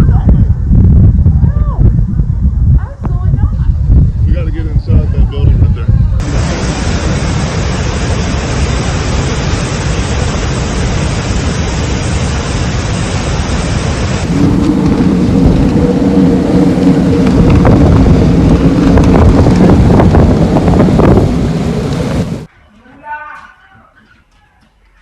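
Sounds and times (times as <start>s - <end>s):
heavy rain: 6.2s - 22.5s
thunder: 6.2s - 22.5s.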